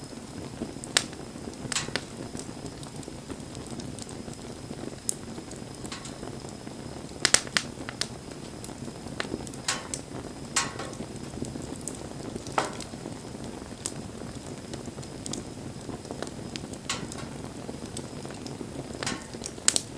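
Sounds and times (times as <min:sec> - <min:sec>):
campfire flame rushing: 0:00.0 - 0:19.9
fire crackles and pops: 0:00.0 - 0:19.9.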